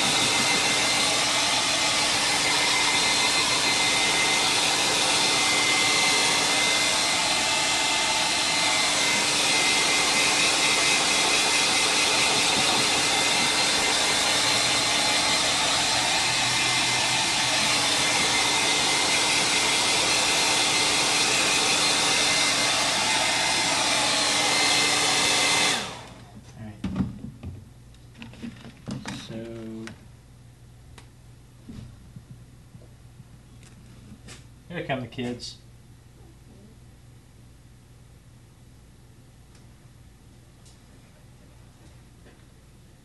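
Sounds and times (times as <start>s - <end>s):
hot-air dryer running: 0.0s - 26.4s.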